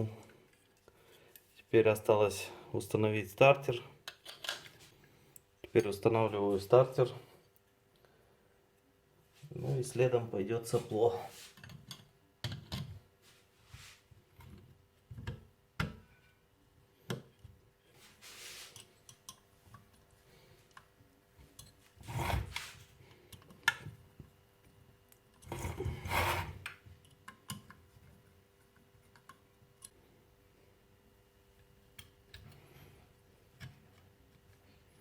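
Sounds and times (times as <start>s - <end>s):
clicks and knocks of metal parts: 4.0s - 4.8s
metal rubbing scrapes: 18.0s - 18.8s, 22.0s - 22.9s, 25.5s - 26.7s.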